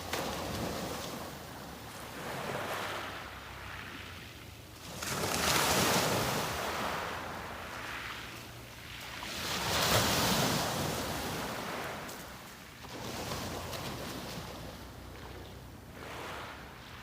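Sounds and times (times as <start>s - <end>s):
small sea waves breaking: 0.0s - 17.0s.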